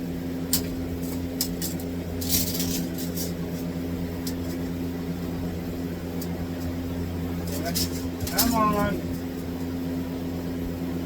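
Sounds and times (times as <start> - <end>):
steady mechanical hum: 0.0 - 11.0
short clicks and rattles: 7.5 - 9.2.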